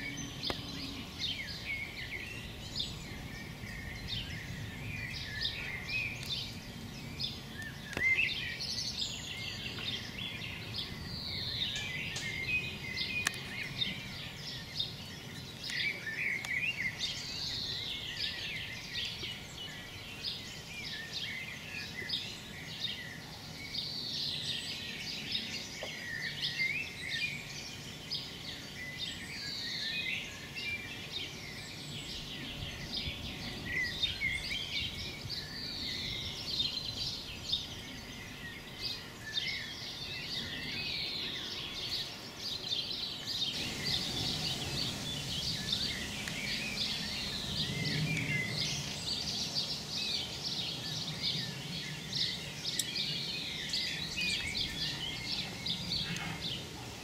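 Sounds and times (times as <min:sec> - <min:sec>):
songbirds singing and chirping: 0:00.0 - 0:57.0
bird song with falling note: 0:43.3 - 0:50.2.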